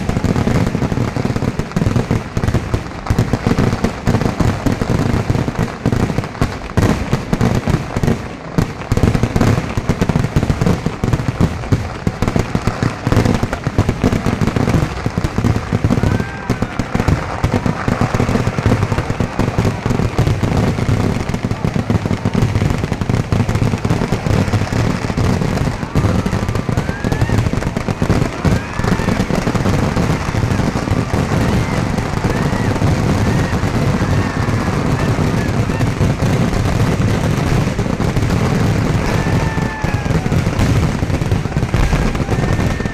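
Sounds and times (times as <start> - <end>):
fireworks bangs and crackling: 0.0 - 42.9
fireworks rising whistles: 24.1 - 42.9.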